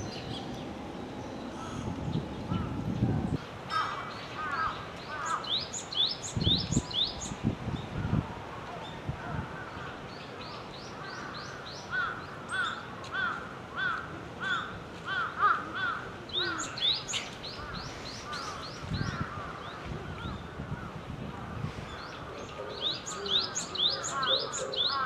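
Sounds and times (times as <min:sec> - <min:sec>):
songbird harsh call notes: 0:21.9 - 0:25.0.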